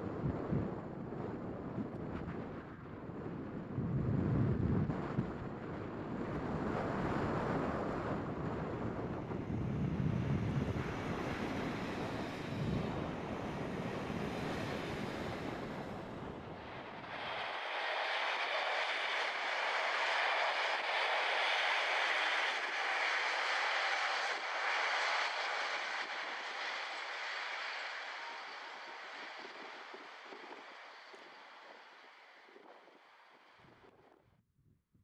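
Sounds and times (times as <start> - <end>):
wind on microphone: 0.0 - 31.8
train wheel and rail noise: 9.4 - 33.2.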